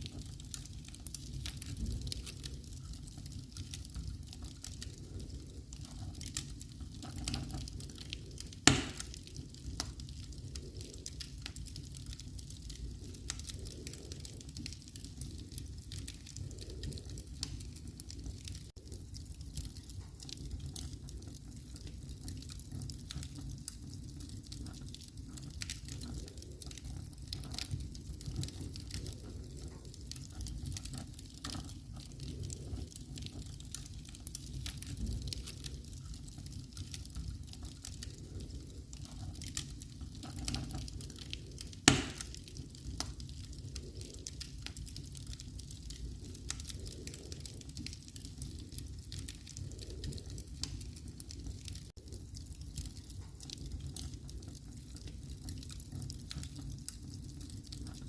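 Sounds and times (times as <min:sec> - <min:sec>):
wood fire crackling: 0:00.0 - 0:58.0
loud pop of fire: 0:08.6 - 0:09.2, 0:41.8 - 0:42.4.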